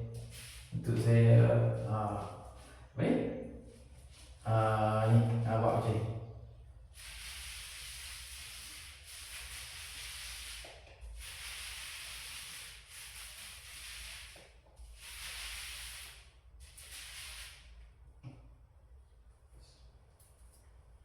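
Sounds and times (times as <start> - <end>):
paint roller rasping on wall: 6.9 - 17.8.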